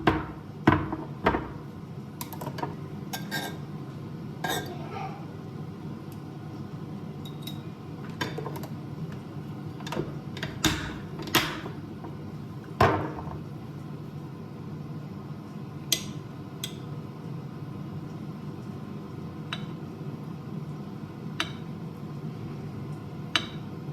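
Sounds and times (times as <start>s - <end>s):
dishes and utensils clinking: 2.2s - 3.6s, 4.4s - 4.8s, 7.2s - 8.7s.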